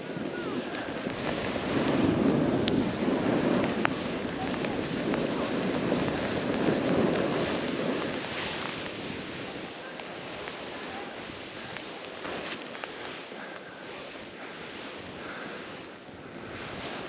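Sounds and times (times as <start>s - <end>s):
snowboard sliding through snow: 0.0s - 17.0s
wind rushing over microphone: 0.0s - 17.0s.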